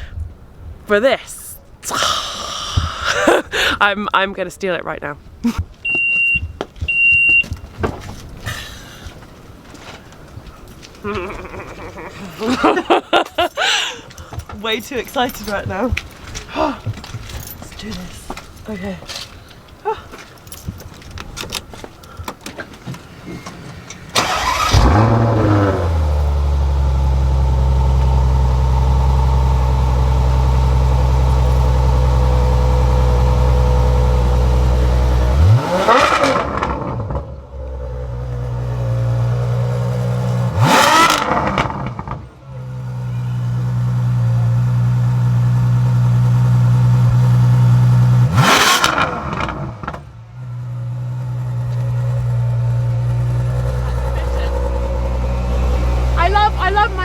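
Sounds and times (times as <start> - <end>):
car engine starting and revving: 23.0 - 57.0.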